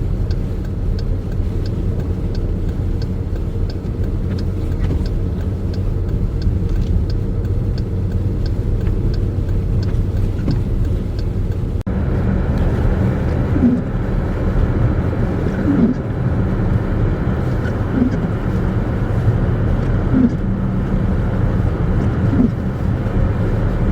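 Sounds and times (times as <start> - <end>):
light high ticking: 0.0 - 23.9
vehicle engine and road rumble: 0.0 - 23.9.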